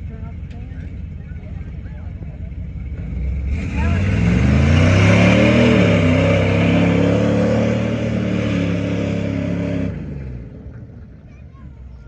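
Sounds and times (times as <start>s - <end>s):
truck engine revving in mud: 2.8s - 10.9s.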